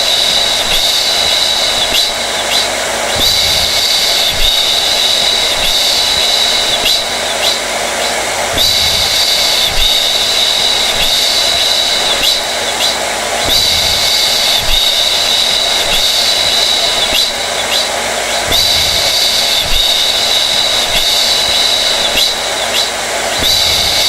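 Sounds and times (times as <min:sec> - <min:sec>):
hair dryer running: 0:00.0 - 0:24.0.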